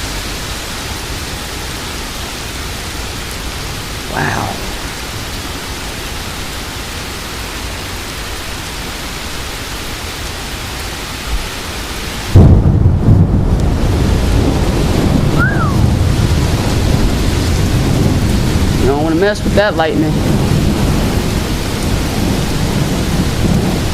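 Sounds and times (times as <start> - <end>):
heavy rain: 0.0 - 23.9
wind: 0.0 - 23.9
thunder clap and rumble: 12.3 - 23.9.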